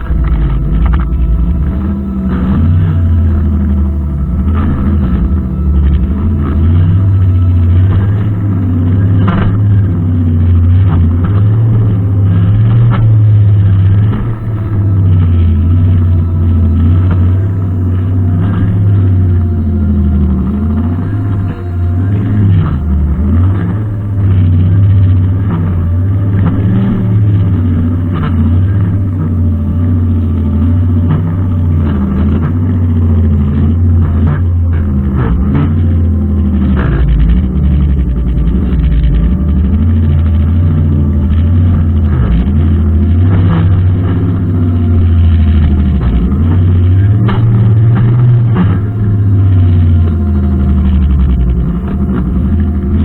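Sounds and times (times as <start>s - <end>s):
brushcutter engine running: 0.0s - 53.0s.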